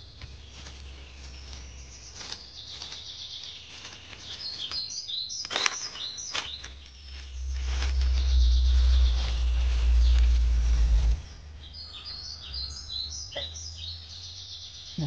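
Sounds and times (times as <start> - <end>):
small birds chirping: 0.0 - 15.0
low rumble: 6.3 - 14.8.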